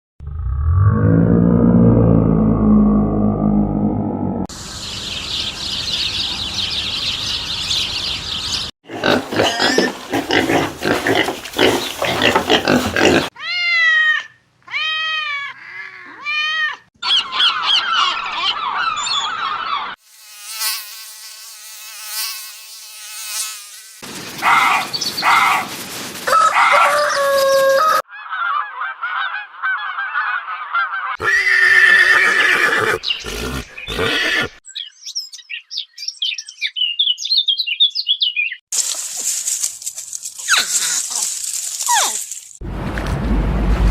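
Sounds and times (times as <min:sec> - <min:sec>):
high animal chattering: 0:08.9 - 0:13.3, 0:31.2 - 0:34.6.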